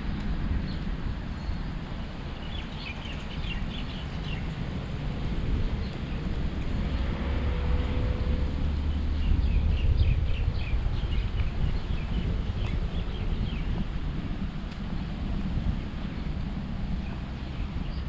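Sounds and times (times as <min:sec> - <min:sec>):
low rumble: 0:04.6 - 0:18.0
small birds chirping: 0:09.2 - 0:13.9.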